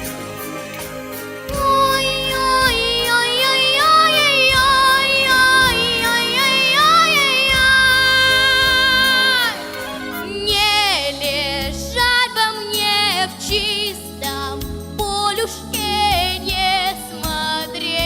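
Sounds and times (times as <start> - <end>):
backing track with steady beat: 0.0 - 18.0
girl singing long held notes: 1.5 - 12.3.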